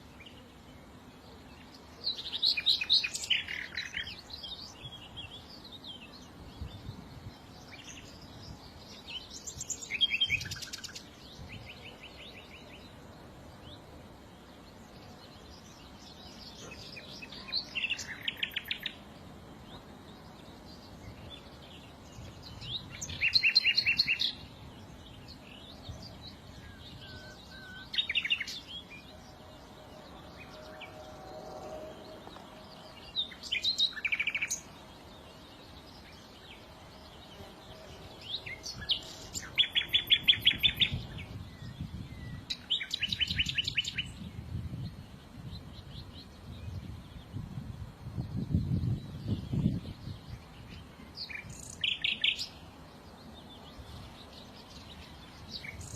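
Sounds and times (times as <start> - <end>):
songbirds trilled chirping: 0.0 - 55.9.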